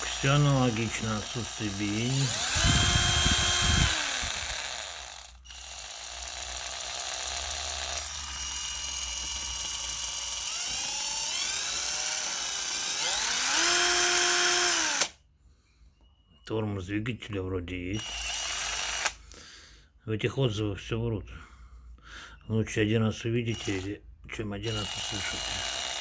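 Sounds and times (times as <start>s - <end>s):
cordless drill motor whining: 0.0s - 15.2s, 18.0s - 19.2s, 23.5s - 24.0s, 24.6s - 26.0s.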